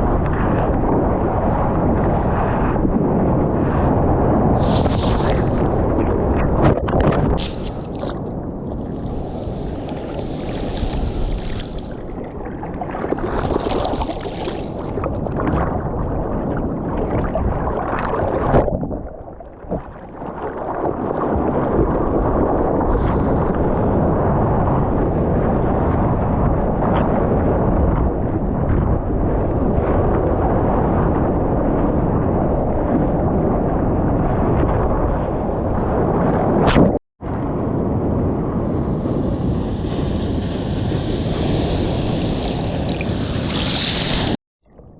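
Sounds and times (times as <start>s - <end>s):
seawater rushing and splashing: 0.0s - 24.8s, 38.8s - 44.4s
wind buffeting microphone: 0.0s - 44.9s.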